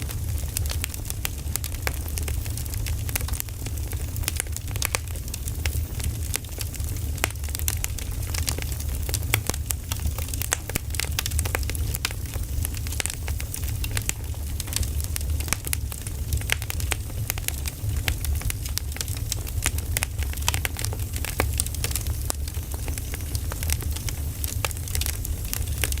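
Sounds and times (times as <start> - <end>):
firewood crackling and popping: 0.0 - 26.0.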